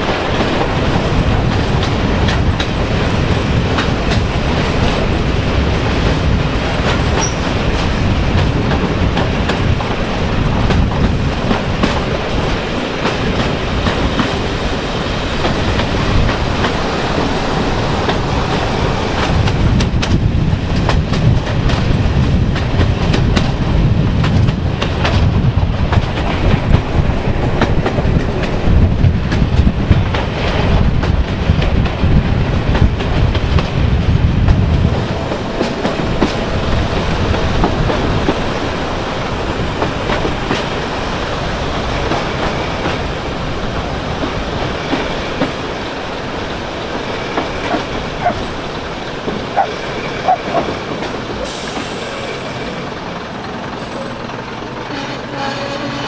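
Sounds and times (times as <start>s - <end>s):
wheels clicking over rail joints: 0.0s - 55.1s
train rumble: 0.0s - 56.0s
faint brake squeal: 7.2s - 7.5s, 51.4s - 52.8s.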